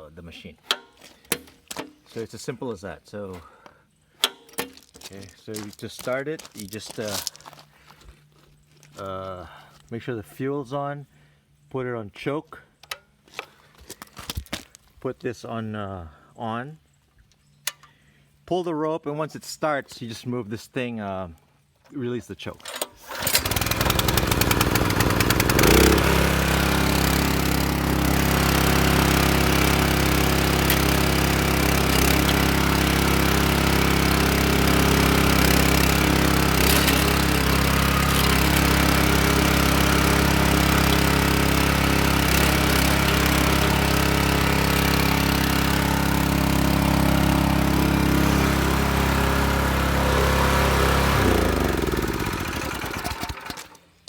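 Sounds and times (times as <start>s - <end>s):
rope pull starting small engine: 22.6s - 54.0s
small petrol engine running: 23.0s - 53.8s.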